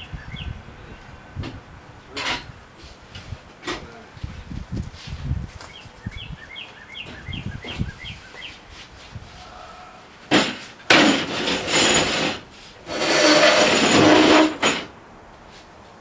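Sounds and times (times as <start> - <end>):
rough scraping of packaging: 10.3 - 15.0.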